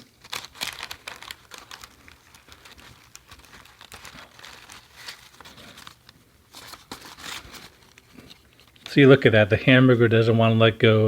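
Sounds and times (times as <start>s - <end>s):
wrapper crinkling and rustling: 0.0s - 9.2s.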